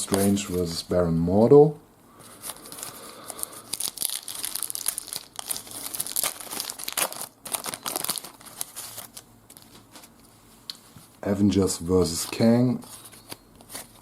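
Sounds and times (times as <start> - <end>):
plastic wrapper tearing and crinkling: 2.5 - 10.1.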